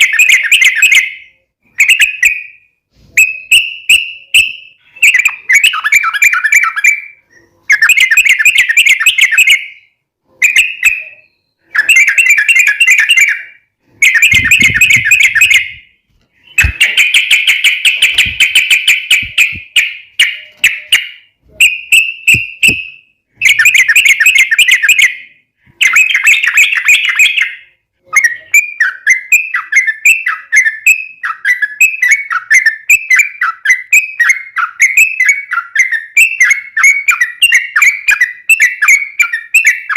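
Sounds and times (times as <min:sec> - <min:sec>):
bulbul singing fast trills: 0:03.3 - 0:25.2.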